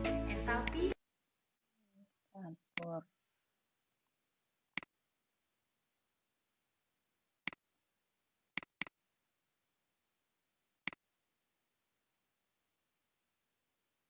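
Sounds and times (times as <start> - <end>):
computer mouse clicks: 8.6 - 9.0.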